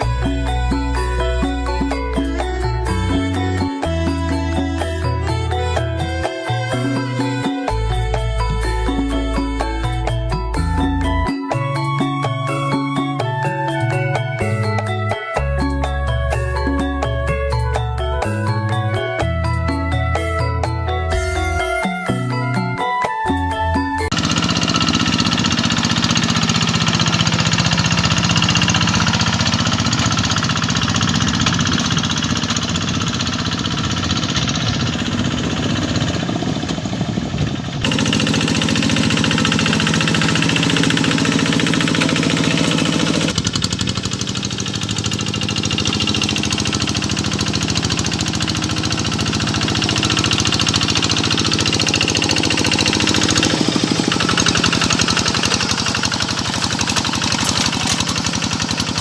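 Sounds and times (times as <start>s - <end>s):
tractor engine knocking: 24.1s - 59.0s.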